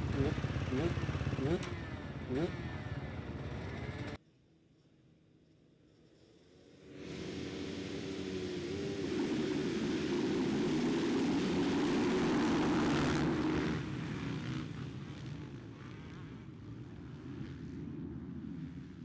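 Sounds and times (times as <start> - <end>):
motocross bike engines revving: 0.0 - 4.2.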